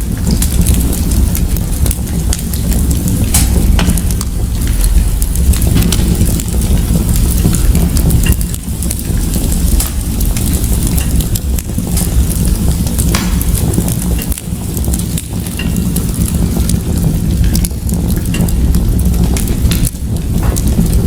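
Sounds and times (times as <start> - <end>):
fire crackling in fireplace: 0.0 - 21.0.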